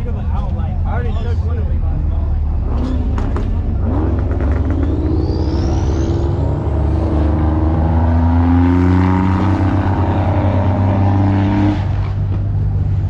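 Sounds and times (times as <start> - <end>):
vehicle engine revving: 1.7 - 13.0.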